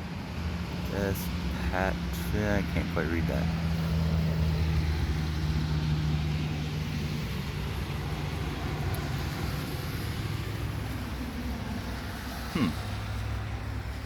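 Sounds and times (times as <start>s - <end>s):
road traffic noise: 0.0s - 14.0s
vehicle engine humming: 0.0s - 14.0s.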